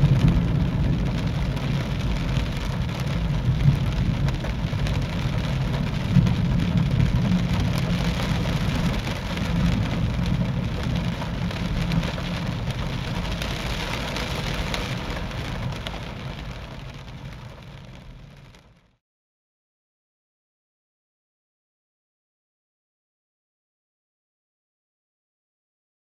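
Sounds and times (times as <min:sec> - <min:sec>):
continuous low rumble: 0:00.0 - 0:19.0
rain falling: 0:00.0 - 0:19.0.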